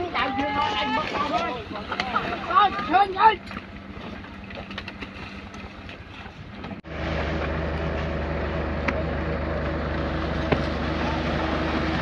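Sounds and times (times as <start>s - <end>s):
truck engine running: 2.4s - 12.0s
deep engine drone: 3.4s - 12.0s.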